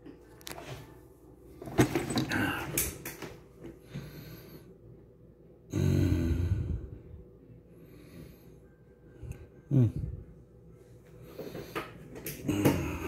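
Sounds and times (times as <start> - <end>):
person breathing close to microphone: 5.7 - 10.4.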